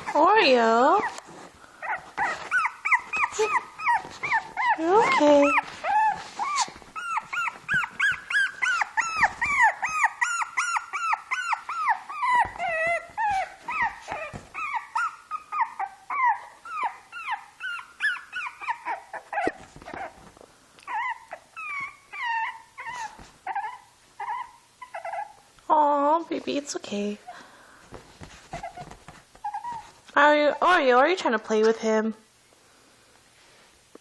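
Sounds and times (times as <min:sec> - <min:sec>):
puppy yelping: 0:00.9 - 0:25.4, 0:28.5 - 0:29.9.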